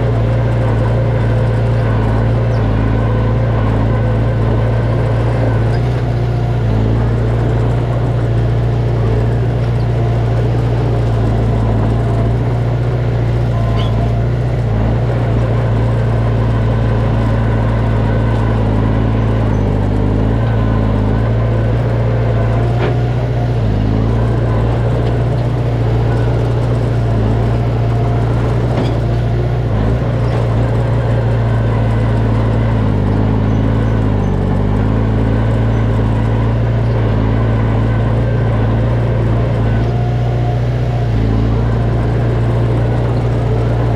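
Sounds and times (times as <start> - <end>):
bulldozer diesel engine running: 0.0 - 43.9
faint high squeaks: 13.6 - 14.2.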